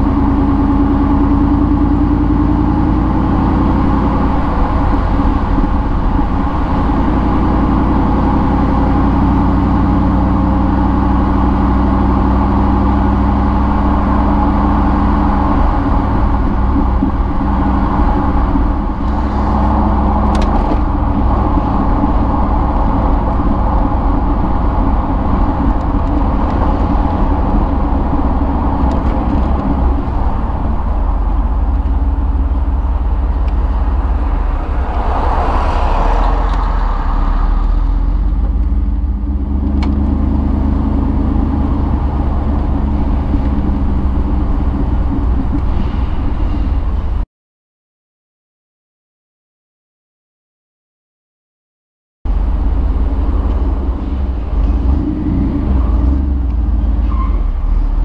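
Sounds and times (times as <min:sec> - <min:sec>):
car engine running: 0:00.0 - 0:46.2, 0:52.3 - 0:57.2
road noise: 0:00.0 - 0:47.2, 0:52.3 - 0:58.0
rush of noise: 0:01.2 - 0:47.2.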